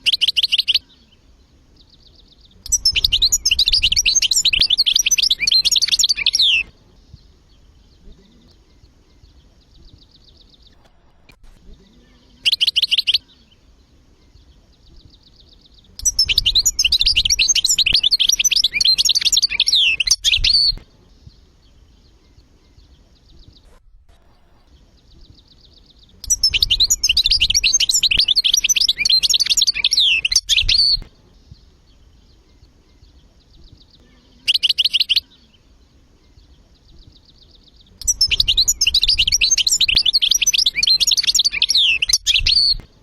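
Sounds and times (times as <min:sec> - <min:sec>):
goldfinch singing: 0:00.0 - 0:10.8, 0:11.8 - 0:23.8, 0:24.4 - 0:43.0.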